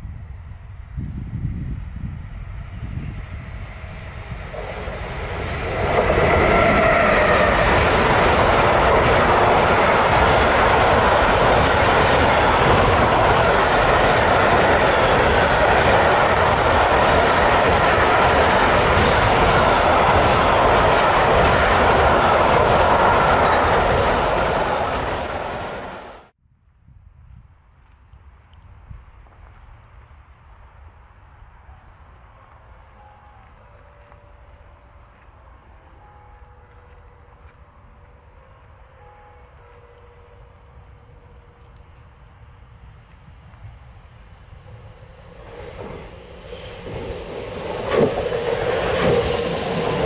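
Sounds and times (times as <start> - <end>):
train wheels rumbling on rails: 0.6 - 26.3, 40.8 - 50.0.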